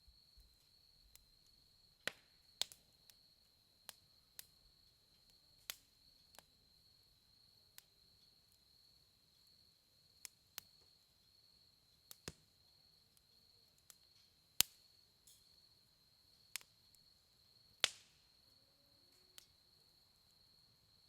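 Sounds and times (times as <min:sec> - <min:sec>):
campfire popping and cracking: 0:01.1 - 0:02.9, 0:05.3 - 0:06.5, 0:12.1 - 0:12.5, 0:13.7 - 0:15.5, 0:16.4 - 0:17.1, 0:17.7 - 0:18.2.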